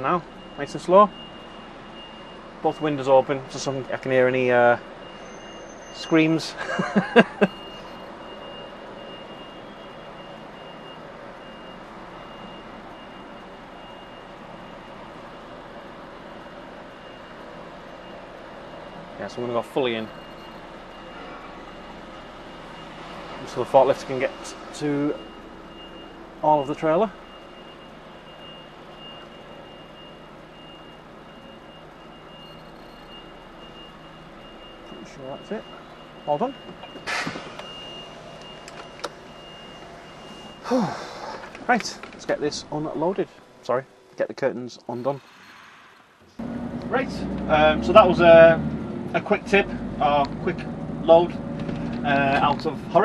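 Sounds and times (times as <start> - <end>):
diesel truck engine: 0.0 - 53.0
reversing alarm tone: 5.0 - 43.4.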